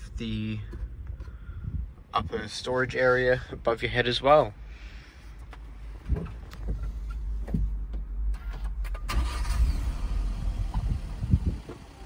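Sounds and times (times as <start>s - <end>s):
small engine starting and running: 9.1s - 10.8s.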